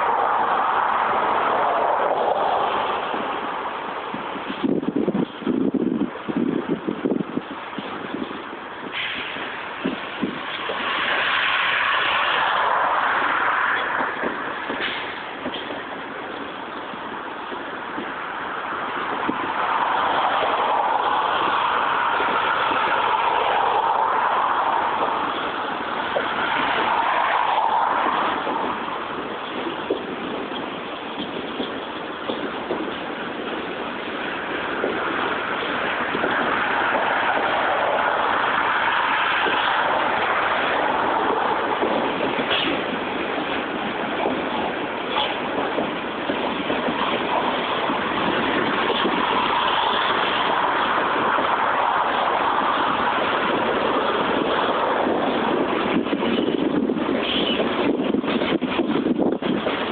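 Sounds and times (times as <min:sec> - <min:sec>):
cars driving by: 0:00.0 - 0:59.9
steel wheels on rails: 0:00.0 - 0:59.9.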